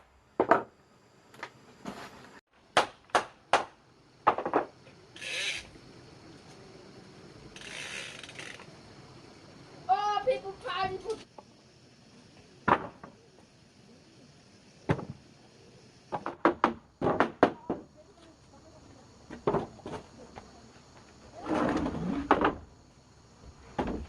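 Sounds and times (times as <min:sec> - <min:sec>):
knocks and clunks: 0:00.4 - 0:00.7, 0:02.8 - 0:04.9, 0:12.6 - 0:13.2, 0:14.9 - 0:15.2, 0:16.1 - 0:17.9, 0:23.4 - 0:24.0.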